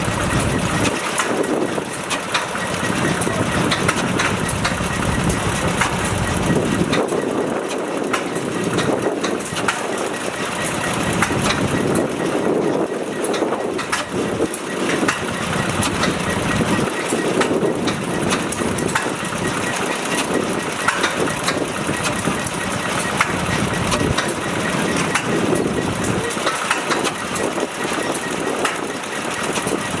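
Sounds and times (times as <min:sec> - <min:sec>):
clicks and knocks from engine parts: 0:00.0 - 0:30.0
oil engine running: 0:00.0 - 0:30.0.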